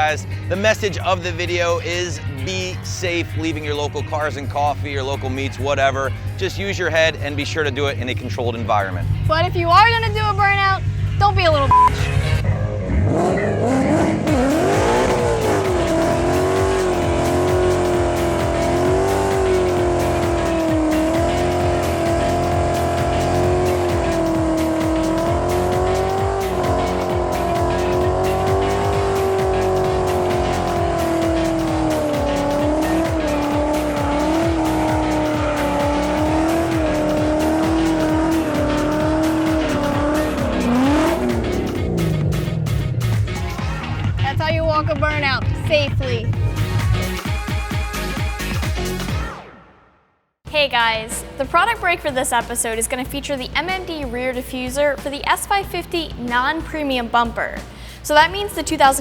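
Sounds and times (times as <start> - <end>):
car engine at high revs: 10.2 - 43.6.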